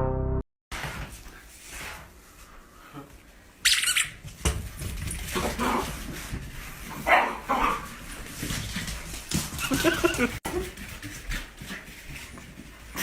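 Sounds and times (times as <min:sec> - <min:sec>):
pet animal squeaking: 0:03.6 - 0:04.1.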